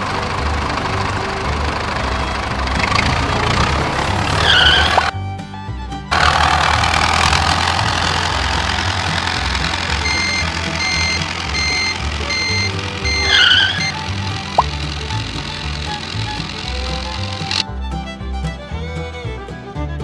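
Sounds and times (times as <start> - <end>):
construction vehicle engine rumbling: 0.0 - 20.0
short squeal: 4.4 - 5.1, 10.0 - 14.7
reversing beeper: 8.6 - 14.7.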